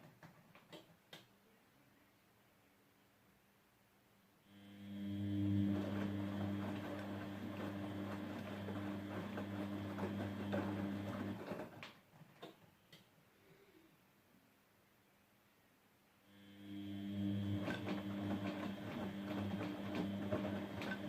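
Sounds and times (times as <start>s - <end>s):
washing machine drain pump hum: 4.5s - 11.8s, 16.4s - 21.0s.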